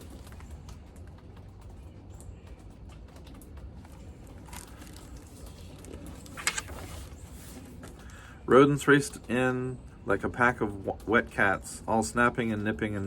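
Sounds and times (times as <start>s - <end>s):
faint rustles and clicks: 0.0s - 10.0s
low steady hum: 0.0s - 13.0s.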